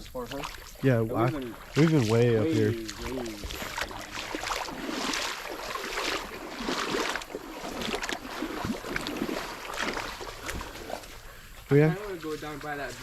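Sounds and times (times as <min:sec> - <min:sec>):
footsteps splashing through water: 0:00.0 - 0:13.0.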